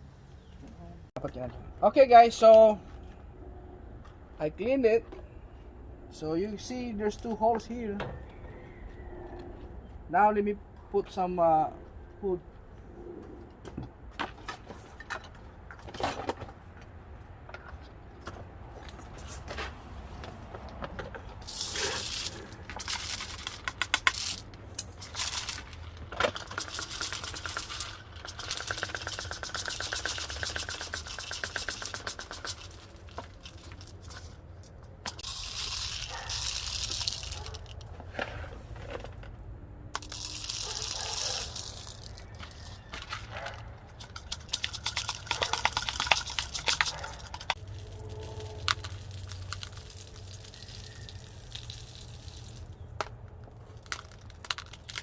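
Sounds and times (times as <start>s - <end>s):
grains rattling into plastic feeder: 21.4s - 34.3s, 35.1s - 39.2s, 40.0s - 52.9s
scattered clicks: 43.9s - 47.6s.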